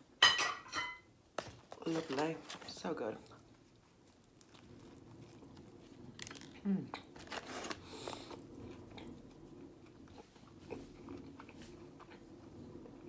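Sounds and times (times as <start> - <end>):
person chewing crunchy food: 3.4 - 13.0.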